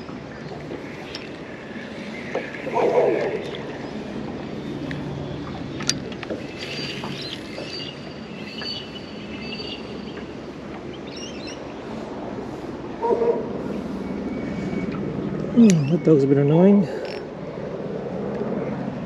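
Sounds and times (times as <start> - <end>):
dog barking: 13.0 - 13.4.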